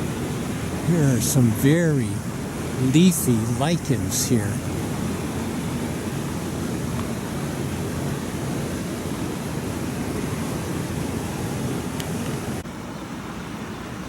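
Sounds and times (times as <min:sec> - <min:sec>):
water rushing over rocks: 0:00.0 - 0:12.6.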